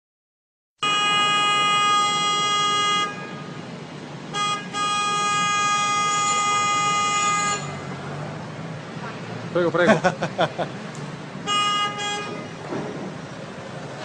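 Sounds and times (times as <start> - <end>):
tram horn blasts: 0.8 - 3.7, 4.3 - 8.1, 11.4 - 12.8.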